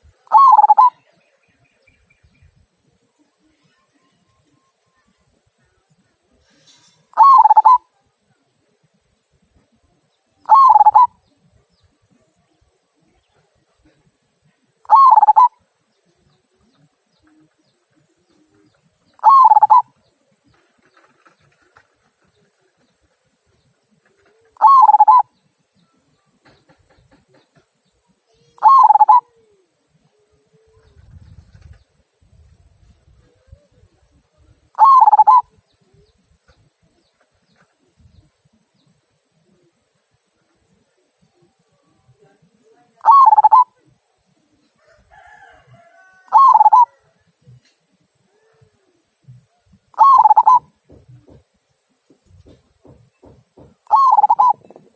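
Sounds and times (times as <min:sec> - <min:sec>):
dove cooing: 0:00.0 - 0:01.1, 0:06.5 - 0:07.9, 0:10.4 - 0:11.3, 0:14.8 - 0:15.7, 0:16.4 - 0:23.2, 0:23.9 - 0:25.4, 0:28.4 - 0:31.8, 0:33.2 - 0:36.2, 0:39.4 - 0:51.5, 0:52.3 - 0:54.9.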